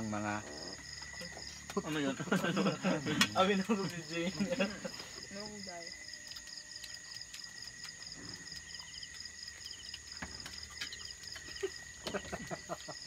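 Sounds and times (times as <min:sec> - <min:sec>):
high steady insect trilling: 0:00.0 - 0:13.0
insect pulsing chirp: 0:00.0 - 0:13.0.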